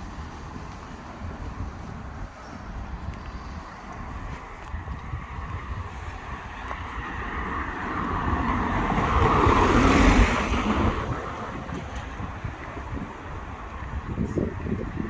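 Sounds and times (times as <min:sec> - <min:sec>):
car passing by: 0:03.3 - 0:15.0.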